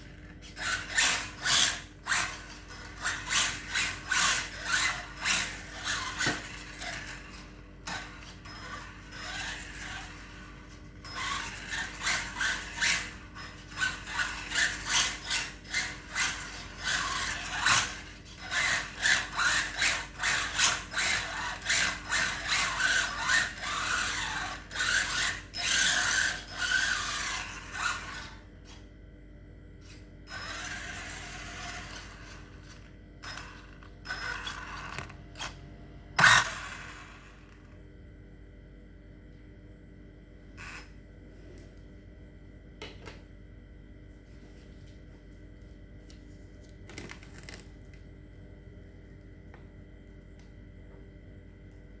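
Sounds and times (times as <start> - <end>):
rc car motor whirring and rattling: 0.0 - 28.8, 29.8 - 35.6, 36.2 - 37.8, 40.6 - 40.9.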